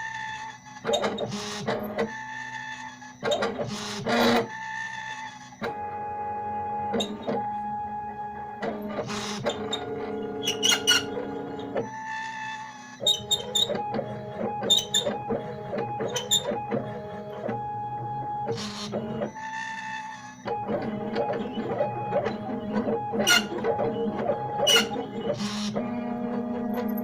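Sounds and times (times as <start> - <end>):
stepper motors whining: 6.5 - 27.0.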